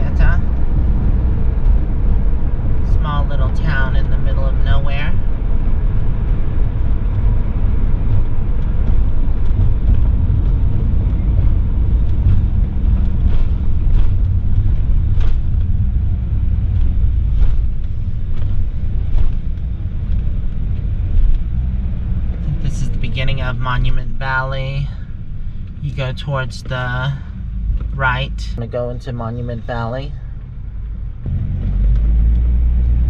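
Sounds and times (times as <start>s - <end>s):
motorhome engine and road rumble: 0.0s - 33.0s.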